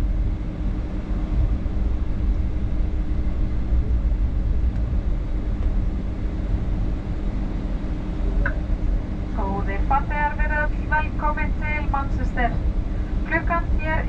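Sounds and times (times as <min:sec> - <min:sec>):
constant low hum: 0:00.0 - 0:14.0
jet engines idling rumble: 0:00.0 - 0:14.0.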